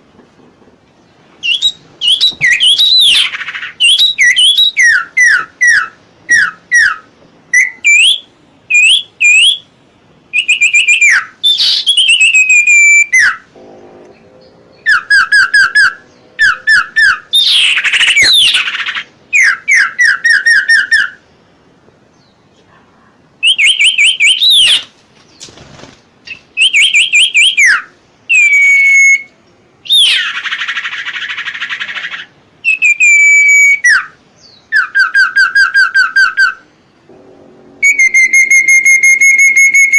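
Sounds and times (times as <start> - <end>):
songbird singing: 0.0 - 39.9
harsh rasping bird call: 29.9 - 39.9.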